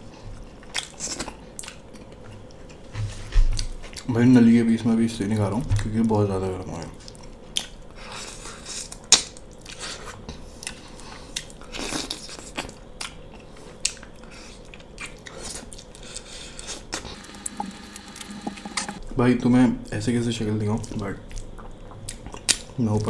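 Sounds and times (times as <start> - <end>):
chewing and wet mouth sounds: 0.3 - 2.8, 3.5 - 4.1, 6.9 - 17.2, 20.7 - 22.8.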